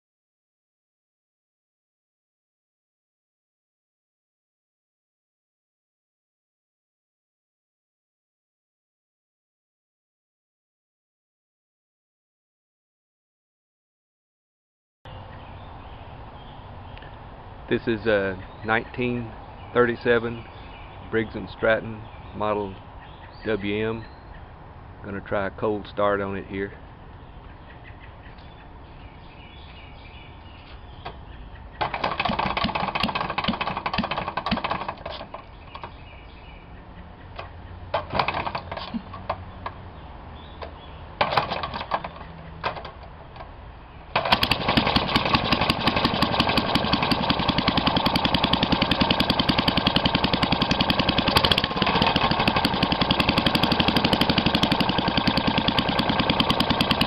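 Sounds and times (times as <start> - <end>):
small engine starting and running: 31.8 - 36.4, 37.4 - 39.8, 40.6 - 43.2, 44.1 - 57.0.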